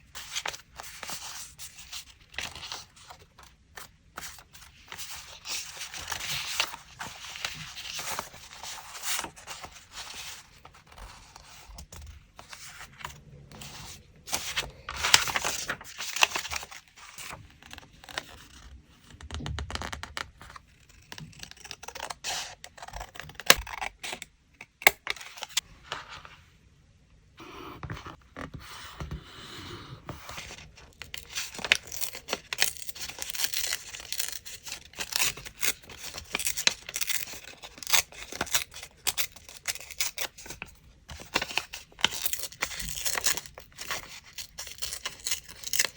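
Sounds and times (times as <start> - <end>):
paper rustling and tearing: 12.4 - 18.6, 30.2 - 45.9.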